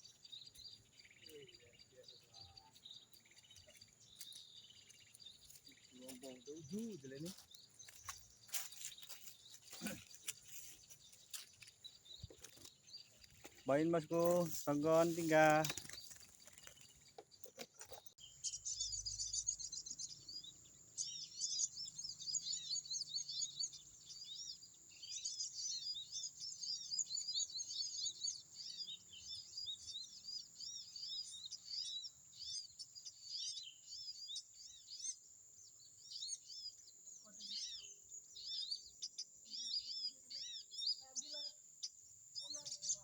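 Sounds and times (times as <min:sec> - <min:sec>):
sunbirds twittering: 0:00.0 - 0:43.0.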